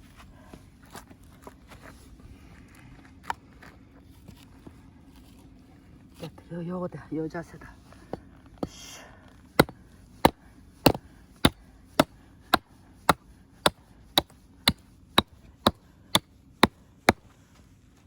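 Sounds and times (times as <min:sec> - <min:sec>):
axe chopping wood: 0:09.6 - 0:17.3.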